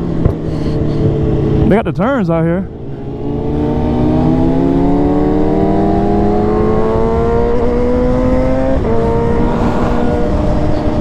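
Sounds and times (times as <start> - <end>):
wind rushing over microphone: 0.0 - 11.0
motorcycle engine revving: 2.7 - 11.0.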